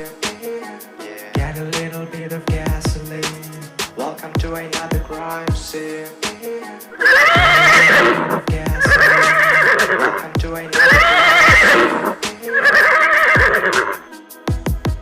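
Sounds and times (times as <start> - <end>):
music with drum beat: 0.0 - 15.0
horse whinnying: 7.0 - 14.0.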